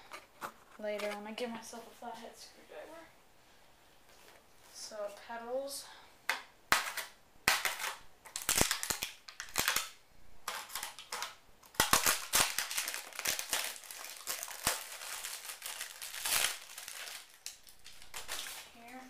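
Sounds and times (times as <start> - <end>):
packaging crinkling: 7.5 - 19.0.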